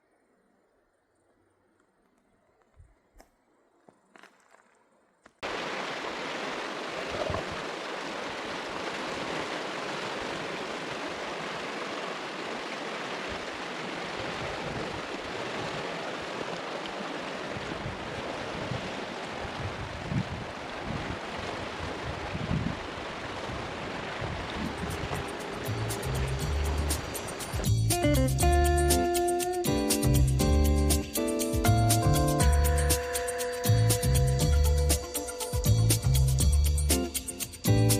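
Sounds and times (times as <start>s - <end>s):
river water rushing: 5.4s - 27.8s
low uneven rumbles: 23.4s - 28.7s.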